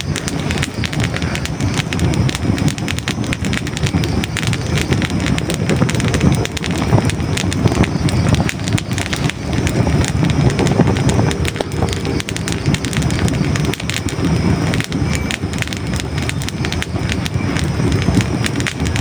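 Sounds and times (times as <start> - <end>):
low rumble of flames: 0.0 - 19.0
wood crackling and popping: 0.0 - 19.0.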